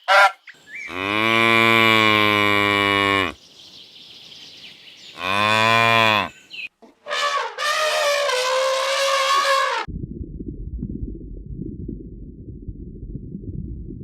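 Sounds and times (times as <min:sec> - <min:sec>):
high-pitched animal call: 0:00.0 - 0:03.4, 0:07.0 - 0:09.9
cow mooing: 0:00.9 - 0:03.4, 0:05.2 - 0:06.4, 0:07.1 - 0:09.9.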